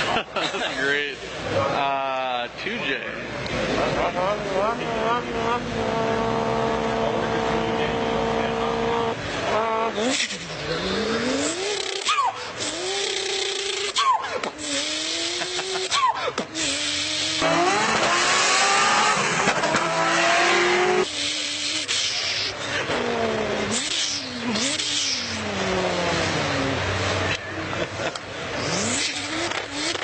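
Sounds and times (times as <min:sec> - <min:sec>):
person imitating engine with mouth: 0:04.1 - 0:07.6, 0:08.2 - 0:17.8, 0:21.0 - 0:26.7.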